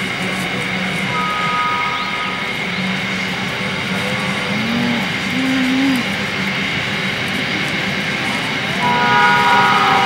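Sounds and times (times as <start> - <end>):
freight train wheels rumbling: 0.0 - 10.0.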